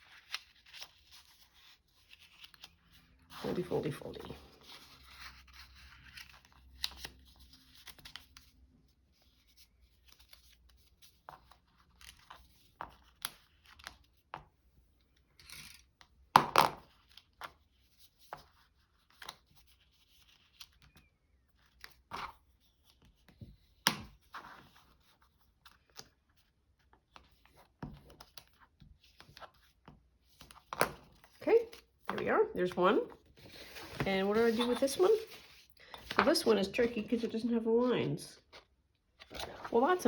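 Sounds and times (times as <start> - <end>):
paper rustling and creasing: 0.0 - 8.5, 32.8 - 37.2, 38.4 - 40.0.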